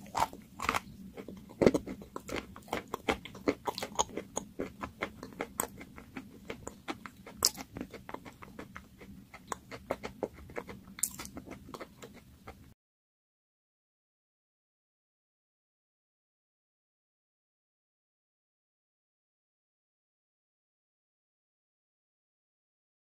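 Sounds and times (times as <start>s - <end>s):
person chewing sticky food: 0.0s - 12.8s.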